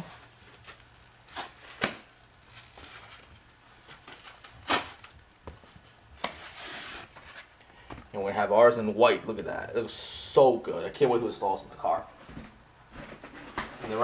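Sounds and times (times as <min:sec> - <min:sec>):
packaging rustling: 0:00.0 - 0:07.6.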